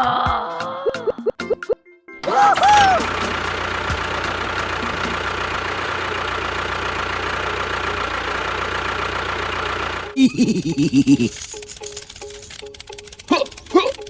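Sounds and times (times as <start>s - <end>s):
brief pitched whoop: 2.2s - 3.1s
motor humming steadily: 2.2s - 14.0s.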